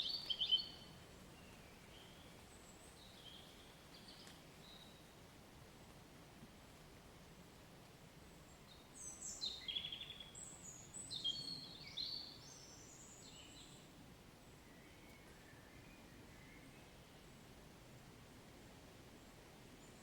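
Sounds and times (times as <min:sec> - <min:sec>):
songbird chirping: 0:00.0 - 0:05.1, 0:08.2 - 0:17.6
faint low background noise: 0:00.0 - 0:20.0.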